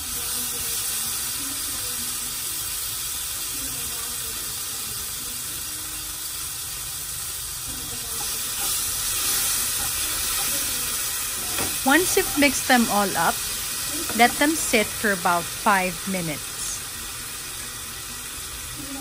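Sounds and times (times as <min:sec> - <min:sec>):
tomatoes sizzling in a frying pan: 0:00.0 - 0:19.0
wooden spoon stirring: 0:08.2 - 0:12.6.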